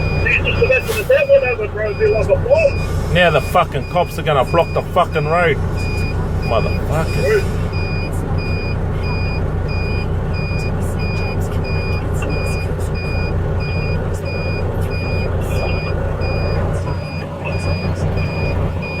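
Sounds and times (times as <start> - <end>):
reversing alarm beeping: 0.0 - 19.0
truck diesel engine idling: 0.0 - 19.0.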